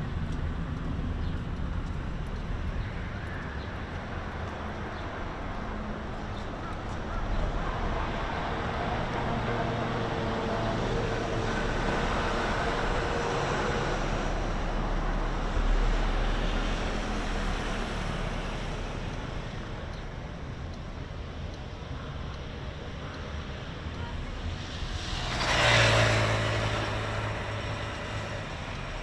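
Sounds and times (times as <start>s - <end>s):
motor vehicle passing: 24.3s - 29.0s.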